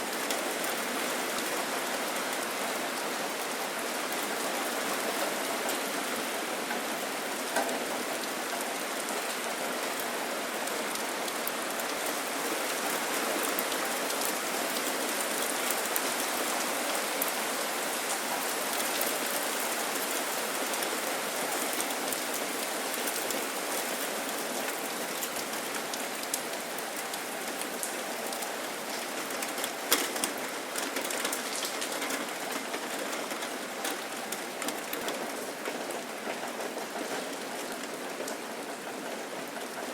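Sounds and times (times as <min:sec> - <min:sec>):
steady rain falling: 0:00.0 - 0:39.9
sharp raindrop ticks: 0:25.2 - 0:36.7.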